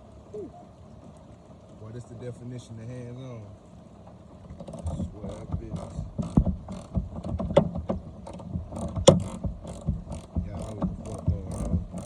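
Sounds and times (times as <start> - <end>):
sharp metal knocks: 4.6 - 12.0.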